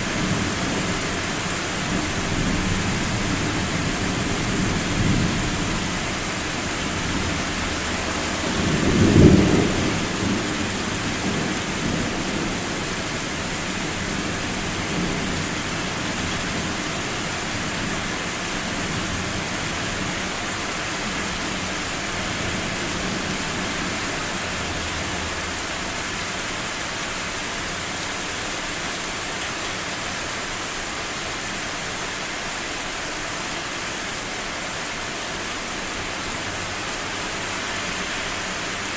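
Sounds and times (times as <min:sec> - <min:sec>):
steady rain: 0:00.0 - 0:38.9
thunder rumble: 0:01.9 - 0:12.8.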